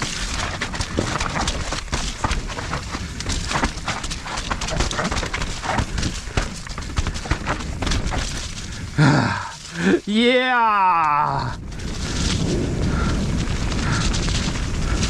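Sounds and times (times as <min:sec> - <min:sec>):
bike clattering over rough ground: 0:00.0 - 0:15.0.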